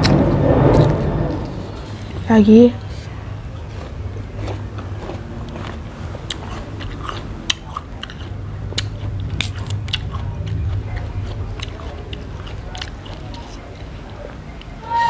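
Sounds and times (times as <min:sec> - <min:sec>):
chewing crisp fruit: 0:03.5 - 0:14.8.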